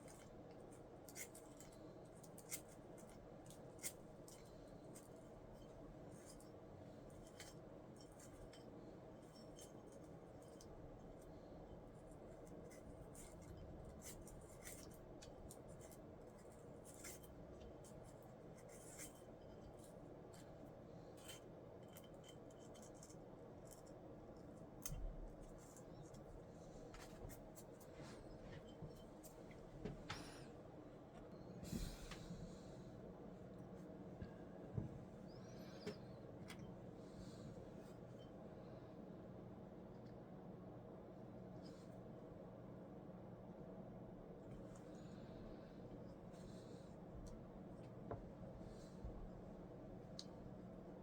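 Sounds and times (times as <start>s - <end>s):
small parts clicking and scraping: 0.0s - 29.6s
low steady hum: 0.0s - 51.0s.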